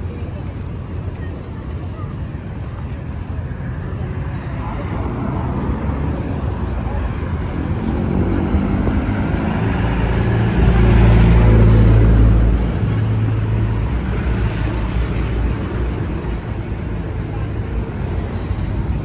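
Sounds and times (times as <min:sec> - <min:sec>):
traffic noise: 0:00.0 - 0:19.0
vehicle engine passing by: 0:05.0 - 0:16.2.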